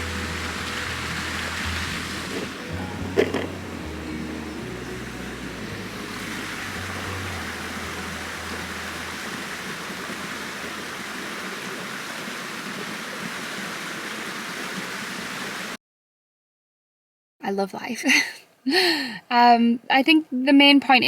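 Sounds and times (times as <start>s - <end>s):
low sustained music tones: 0.0s - 11.1s
running water rushing: 0.0s - 15.8s.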